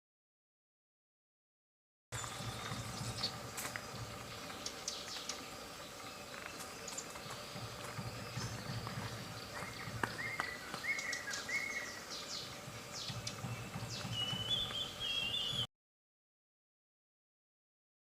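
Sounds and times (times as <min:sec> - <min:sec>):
outdoor background noise: 0:02.1 - 0:15.7
bird warbling call: 0:02.2 - 0:15.7
birds whistling and chirping: 0:02.2 - 0:15.7.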